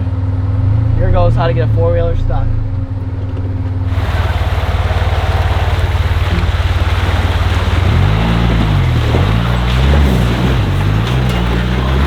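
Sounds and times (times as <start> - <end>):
atv engine revving under load: 3.9 - 12.0
tyres churning through wet ground: 3.9 - 12.0.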